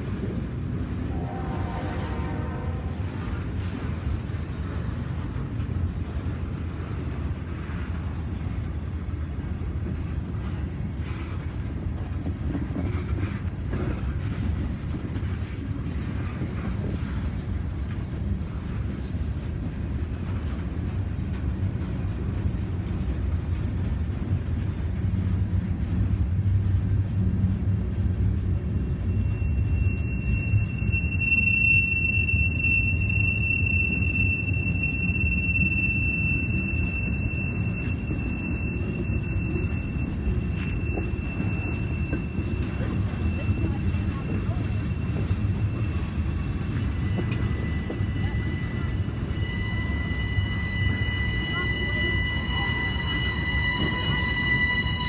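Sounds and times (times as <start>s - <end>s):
freight train rumbling past: 0.0s - 55.0s
steel wheel squeal: 28.7s - 55.0s.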